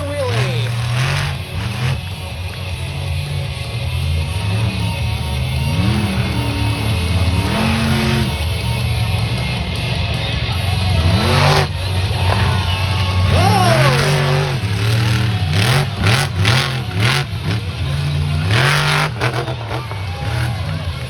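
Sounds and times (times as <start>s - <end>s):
monster truck engine revving: 0.0s - 21.0s.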